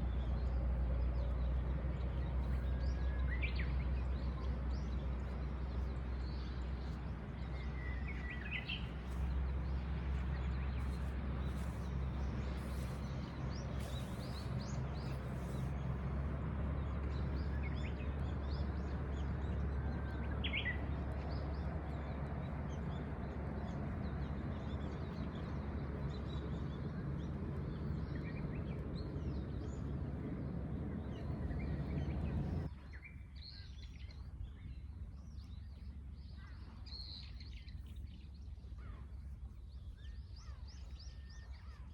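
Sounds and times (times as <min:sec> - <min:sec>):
low outdoor rush: 0:00.0 - 0:32.8
wild birds chirping: 0:00.0 - 0:41.9.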